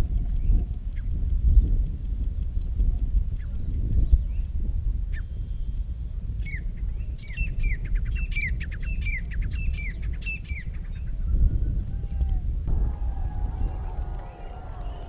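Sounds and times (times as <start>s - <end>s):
steady low rumble: 12.7s - 15.0s.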